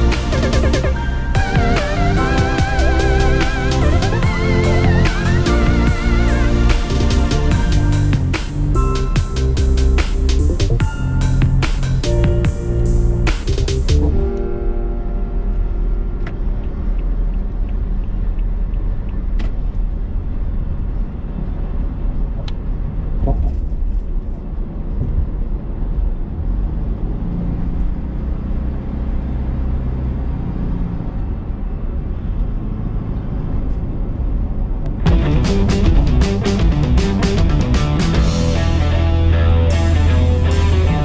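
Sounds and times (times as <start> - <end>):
heavy vehicle engine rumbling: 0.0 - 14.1, 34.8 - 41.0.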